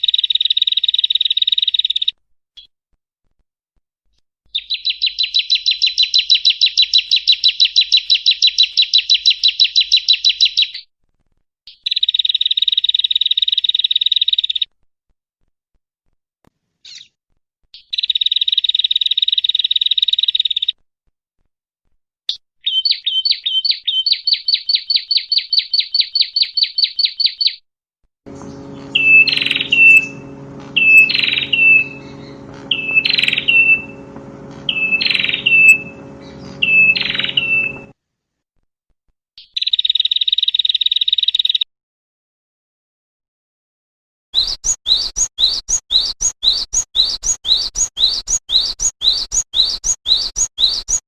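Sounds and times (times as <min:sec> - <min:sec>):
bird buzzing trill: 0:28.3 - 0:37.9, 0:44.4 - 0:51.0
loud bird calls: 0:28.3 - 0:37.9, 0:44.4 - 0:51.0
steady low hum: 0:28.3 - 0:37.9
bird quick repeated chirps: 0:28.4 - 0:37.9, 0:44.4 - 0:51.0.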